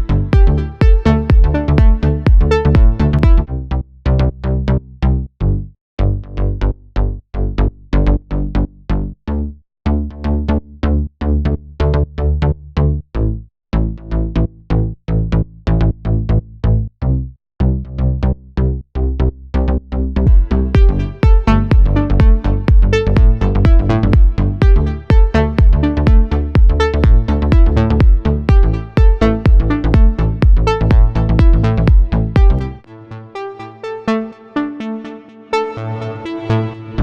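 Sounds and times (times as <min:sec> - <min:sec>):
drum machine beat: 0:00.0 - 0:03.4, 0:20.3 - 0:32.7
synth bass line: 0:00.0 - 0:04.8, 0:17.6 - 0:37.0.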